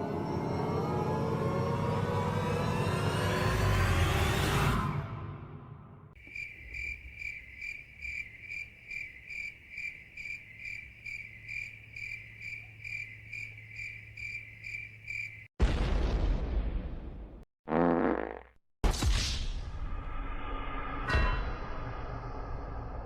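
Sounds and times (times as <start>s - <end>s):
crickets chirping: 6.2s - 15.6s.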